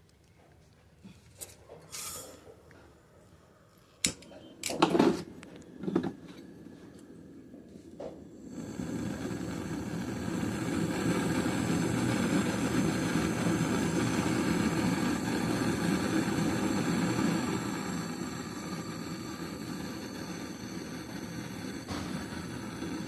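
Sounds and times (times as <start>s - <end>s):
motor-driven machine running: 8.4s - 23.0s.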